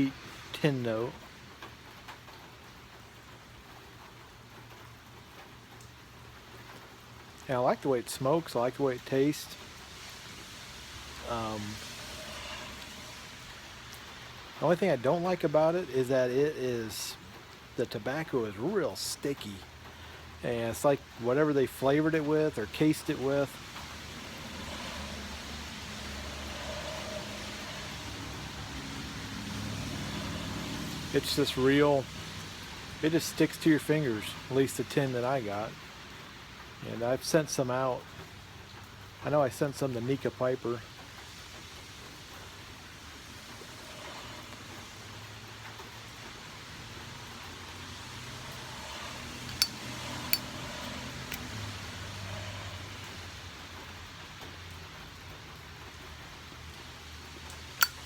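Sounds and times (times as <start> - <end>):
rain falling: 0.0 - 58.0
tyres hissing on wet road: 0.0 - 58.0
highway traffic hum: 6.3 - 37.1, 37.7 - 58.0
sharp clicks: 49.5 - 49.8, 57.8 - 58.0.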